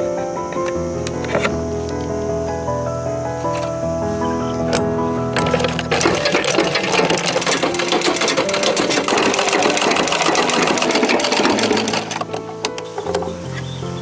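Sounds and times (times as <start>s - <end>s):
music: 0.0s - 14.0s
small machine clattering: 4.5s - 13.7s.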